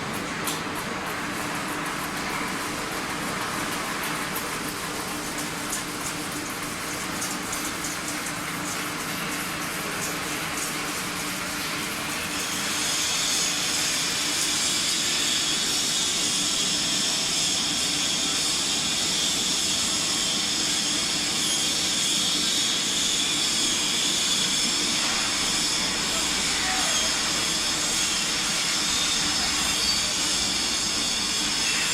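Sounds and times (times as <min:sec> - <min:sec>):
metal spinning machine whining: 0:12.0 - 0:31.9.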